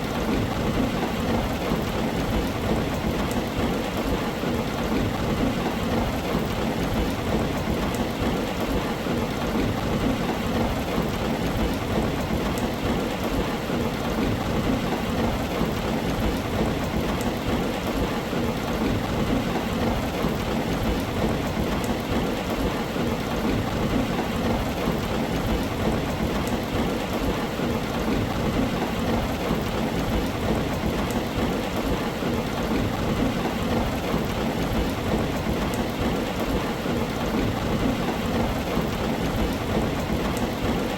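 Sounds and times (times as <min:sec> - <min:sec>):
heavy rain on a tin roof: 0:00.0 - 0:40.9.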